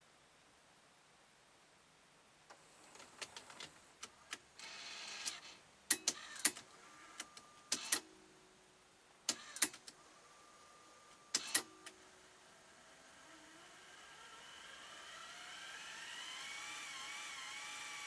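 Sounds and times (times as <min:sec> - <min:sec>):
tape mechanism clicks: 0:07.2 - 0:08.1, 0:09.3 - 0:10.0, 0:11.3 - 0:11.7
motor whir: 0:12.7 - 0:18.0.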